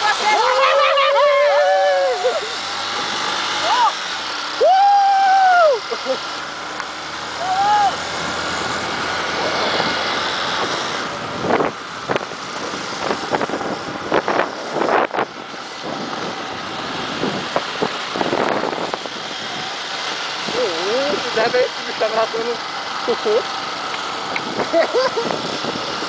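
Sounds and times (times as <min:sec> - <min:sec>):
motorcycle running: 0:00.0 - 0:26.0
wind buffeting microphone: 0:08.0 - 0:22.8, 0:23.4 - 0:26.0.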